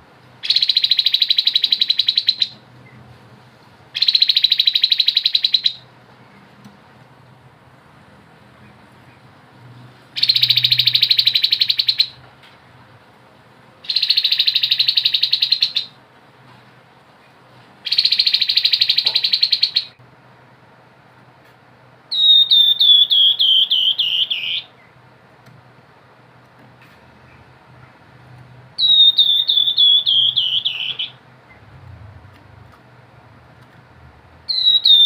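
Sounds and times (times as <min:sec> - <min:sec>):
bird notes falling in pitch: 0:28.8 - 0:31.2.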